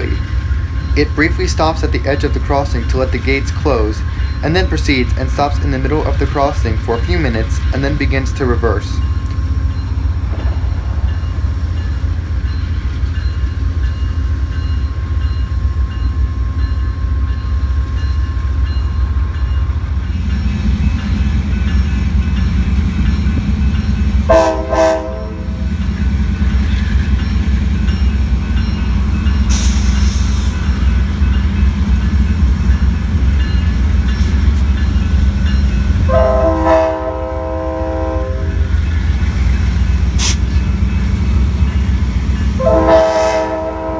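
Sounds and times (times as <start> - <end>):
diesel locomotive rumbling: 0.0 - 43.9
train horn blasts: 24.3 - 25.6, 36.0 - 38.6, 42.6 - 43.9
air hiss: 29.5 - 30.7, 40.1 - 40.6.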